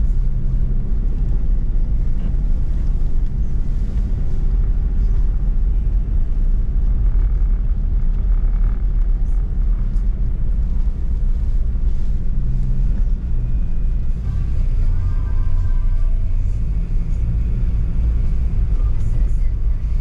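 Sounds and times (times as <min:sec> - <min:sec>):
vehicle engine rumble: 0:00.0 - 0:20.0.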